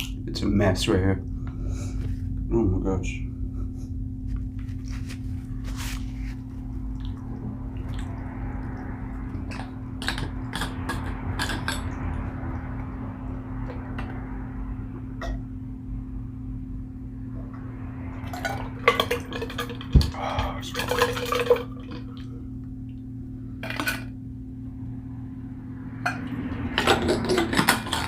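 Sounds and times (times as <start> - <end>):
steady low hum: 0.0 - 28.0
chewing and wet mouth noises: 6.7 - 12.1.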